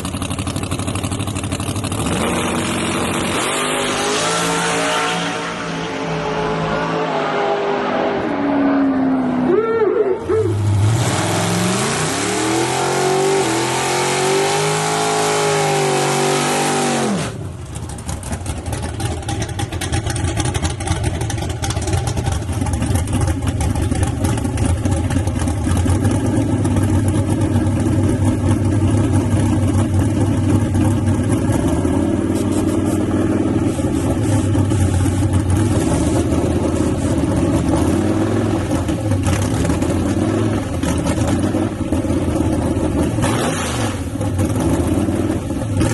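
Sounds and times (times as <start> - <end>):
choppy engine idle: 0.0 - 2.1, 17.4 - 31.7, 33.7 - 35.9, 40.7 - 43.2
truck engine at high revs: 0.0 - 45.9.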